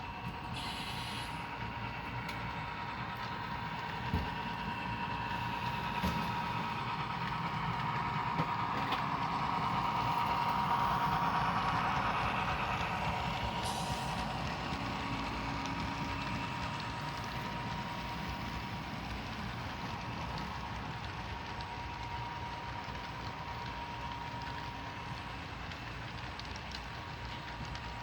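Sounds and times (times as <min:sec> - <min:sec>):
diesel locomotive engine sound: 0:00.0 - 0:28.0.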